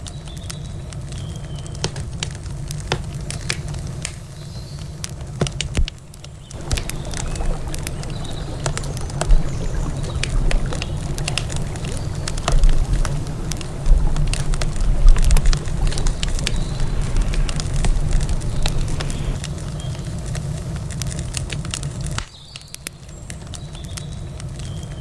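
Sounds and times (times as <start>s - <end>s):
wood campfire crackling: 6.6s - 19.7s.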